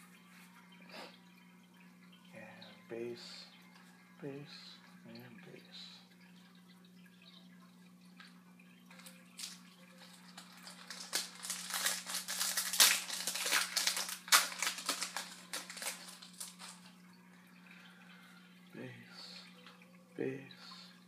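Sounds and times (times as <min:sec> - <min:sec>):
wrapper torn and crinkled: 0:08.9 - 0:16.9.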